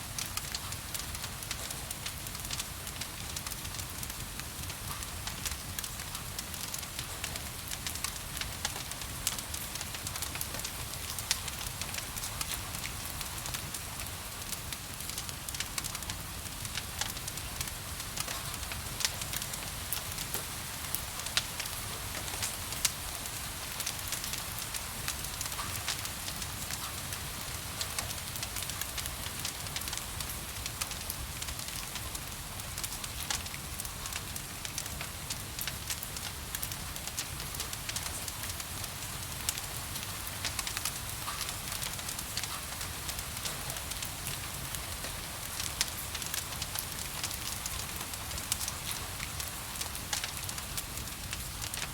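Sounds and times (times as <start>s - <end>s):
wood fire crackling and popping: 0.2s - 51.9s.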